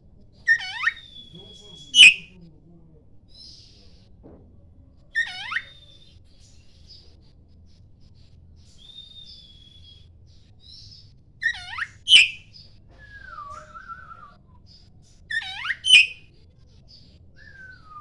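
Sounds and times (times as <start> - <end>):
bird singing whistled phrases: 0.5 - 2.3, 5.2 - 6.1, 8.8 - 10.0, 11.4 - 14.4, 15.3 - 16.3, 17.4 - 18.0.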